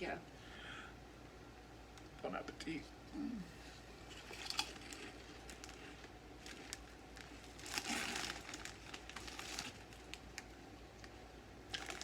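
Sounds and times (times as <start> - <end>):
potato chips crunching: 4.1 - 11.1, 11.7 - 12.0.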